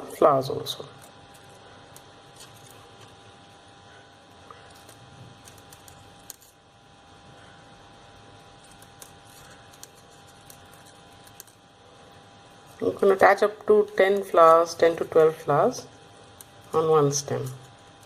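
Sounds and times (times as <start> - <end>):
low room hum: 0.0 - 18.0
crepe paper crinkling: 1.0 - 3.2, 8.5 - 11.7.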